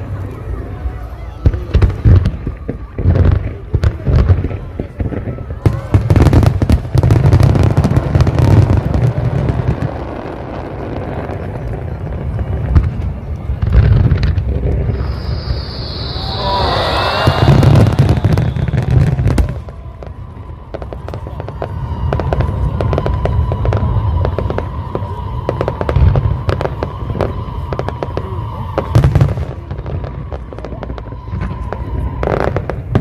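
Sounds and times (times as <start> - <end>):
fireworks crackling: 0.0 - 33.0
firework shells booming: 12.2 - 20.2
steady high tone: 14.8 - 19.1.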